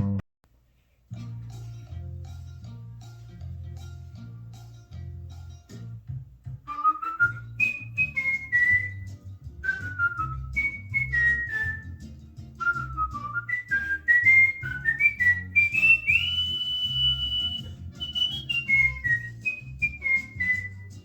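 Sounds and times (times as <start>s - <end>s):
cockatiel whistling a tune: 6.7s - 12.0s, 12.6s - 21.0s.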